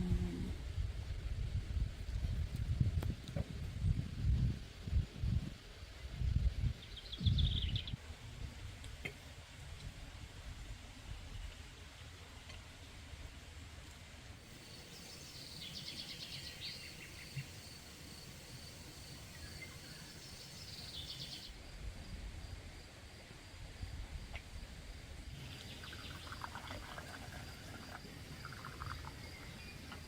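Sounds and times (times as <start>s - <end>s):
birds trilled chirping: 14.5s - 21.6s.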